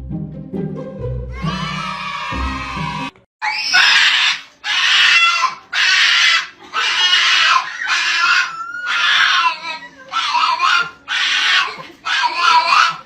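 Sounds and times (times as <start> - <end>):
background music: 0.0 - 3.2
animal harsh cries: 1.4 - 13.0.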